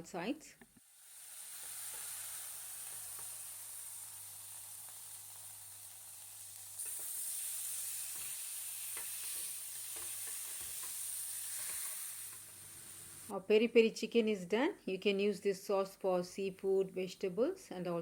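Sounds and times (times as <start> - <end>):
chicken sizzling in oil: 0.8 - 13.3.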